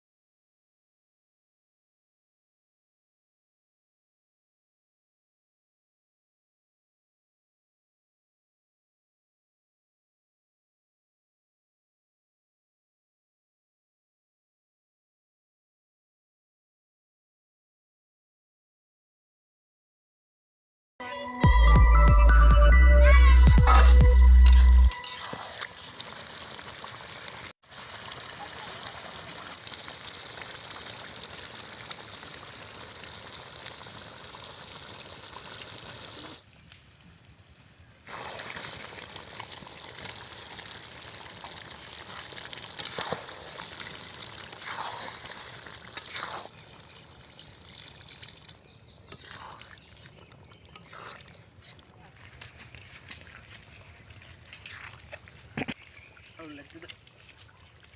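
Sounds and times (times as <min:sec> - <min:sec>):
scraping strokes: 0:23.6 - 0:25.8, 0:44.5 - 0:46.6, 0:49.1 - 0:50.2
curry sizzling and bubbling: 0:23.6 - 0:36.4, 0:38.0 - 0:51.9.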